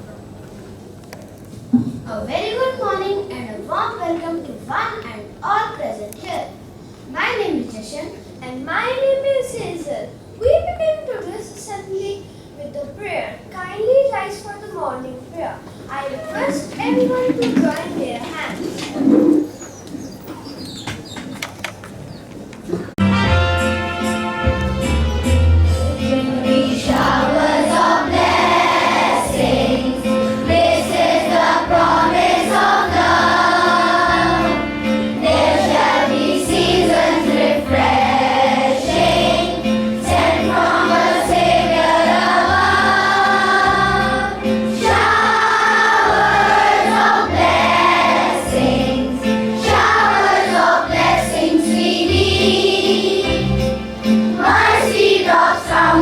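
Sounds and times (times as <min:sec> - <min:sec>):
instrumental accompaniment with beat: 0:23.0 - 0:27.2
group singing: 0:26.0 - 0:34.6, 0:35.2 - 0:53.7, 0:54.4 - 0:56.0.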